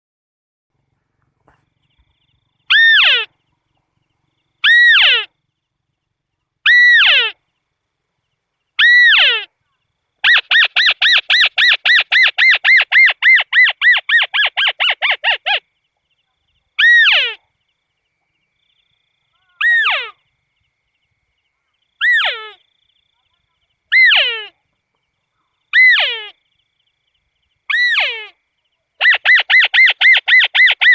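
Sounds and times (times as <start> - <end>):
crake calling: 1.1 - 5.8, 6.6 - 7.6, 18.5 - 20.4, 21.5 - 30.9.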